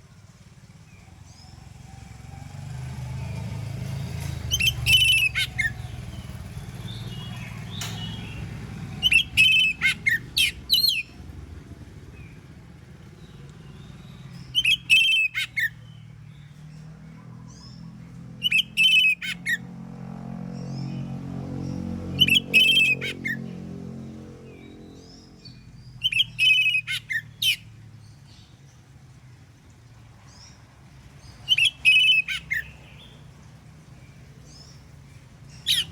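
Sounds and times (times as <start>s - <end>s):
bird singing whistled phrases: 4.5s - 5.9s, 9.0s - 11.1s, 13.8s - 15.8s, 18.4s - 19.5s, 25.8s - 27.6s, 31.4s - 33.2s.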